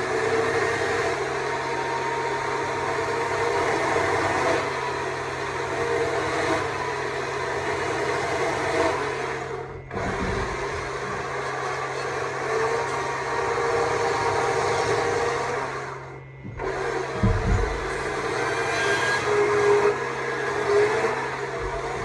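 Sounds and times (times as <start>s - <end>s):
chainsaw cutting wood: 16.6s - 22.0s.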